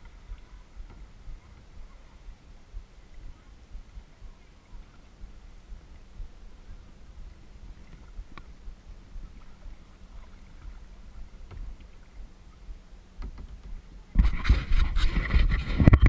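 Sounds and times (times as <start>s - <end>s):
faint knocks: 0.0s - 12.3s, 13.2s - 14.3s
splashing water: 0.0s - 15.7s
quiet low rumble: 0.0s - 16.0s.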